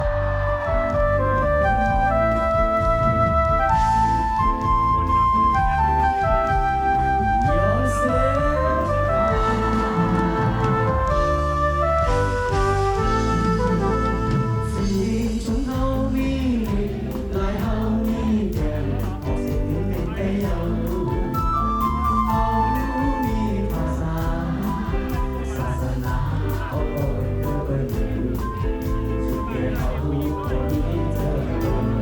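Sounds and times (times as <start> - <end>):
instrumental melody: 0.0 - 15.2
bass: 0.0 - 32.0
person singing: 0.0 - 32.0
steady percussion beat: 0.0 - 32.0.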